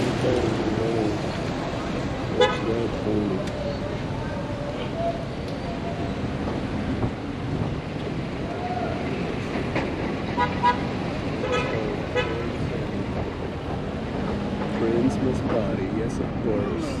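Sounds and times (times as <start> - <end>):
faint voices: 0.0 - 7.0, 11.3 - 17.0
traffic engines and road noise: 0.0 - 17.0
car horn toots: 2.4 - 2.9.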